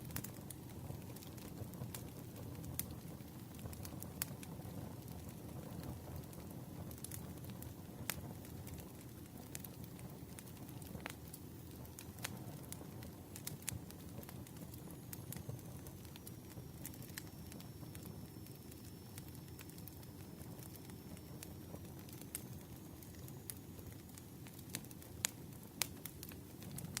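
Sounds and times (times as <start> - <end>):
campfire flames rushing: 0.0 - 27.0
wood popping and crackling: 6.2 - 27.0.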